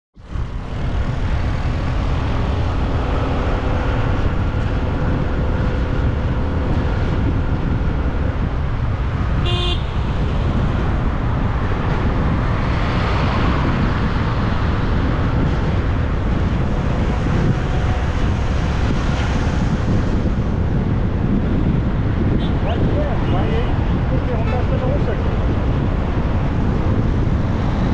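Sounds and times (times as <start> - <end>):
road and traffic noise: 0.2 - 27.9
vehicle horn toot: 9.4 - 10.0.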